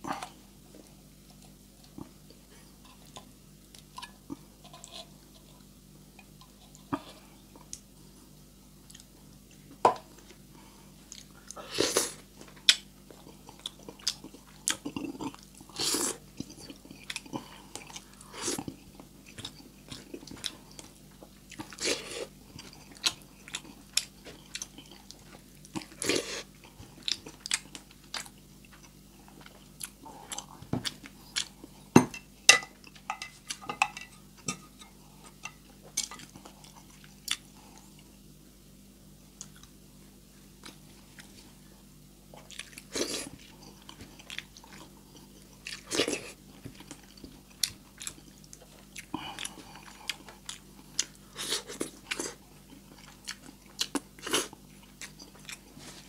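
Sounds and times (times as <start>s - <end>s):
chewing and lip smacking: 42.3s - 55.7s.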